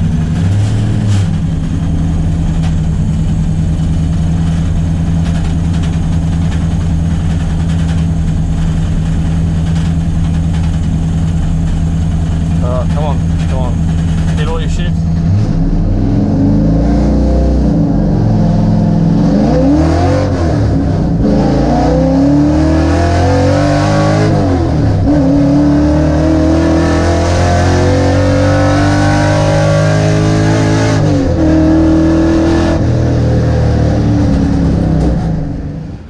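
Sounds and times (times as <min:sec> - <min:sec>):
race car engine accelerating: 0:11.7 - 0:36.0.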